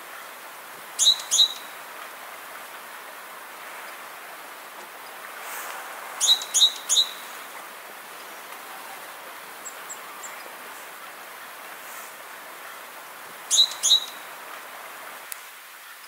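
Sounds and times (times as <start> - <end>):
background hiss: 0.0 - 16.0
small bird chirping: 1.0 - 1.7, 6.2 - 7.4, 13.5 - 14.3.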